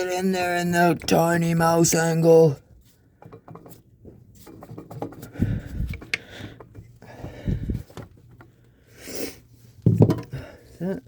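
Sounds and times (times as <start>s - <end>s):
dull thumps: 9.8s - 10.5s.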